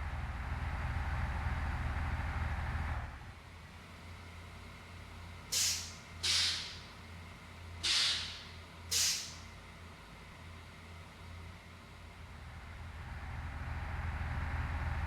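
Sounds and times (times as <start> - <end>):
engine idling hum: 0.0 - 15.0
compressed air hissing: 5.5 - 6.9, 7.8 - 9.4.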